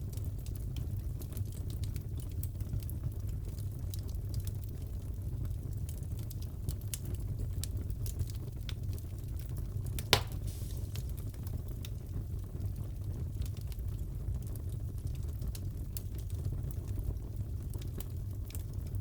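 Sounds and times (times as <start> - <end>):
fire burning rumble: 0.0 - 19.0
fire crackling: 0.0 - 19.0
sharp fire pop: 10.0 - 11.3.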